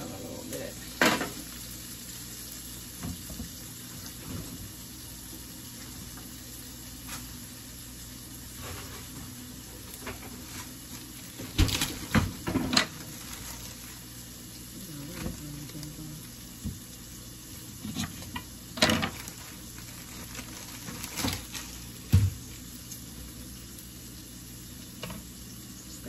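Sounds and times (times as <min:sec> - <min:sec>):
food sizzling in a pan: 0:00.0 - 0:26.0
kitchen items knocking and clattering: 0:11.4 - 0:13.0, 0:22.1 - 0:22.4.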